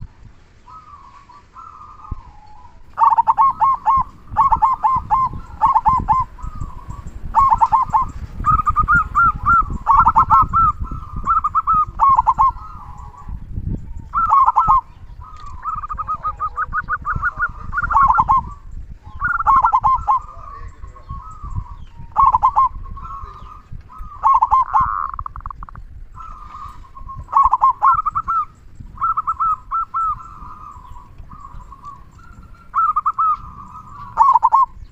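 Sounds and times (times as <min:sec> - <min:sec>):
dove cooing: 0:00.0 - 0:34.9
low rumbling noise: 0:00.0 - 0:34.9.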